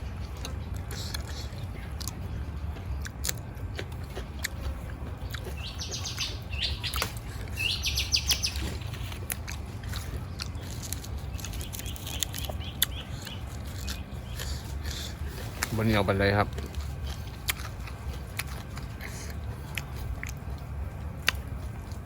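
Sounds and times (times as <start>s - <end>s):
steady low rumble: 0.0s - 22.0s
bird calling high notes: 5.5s - 8.8s.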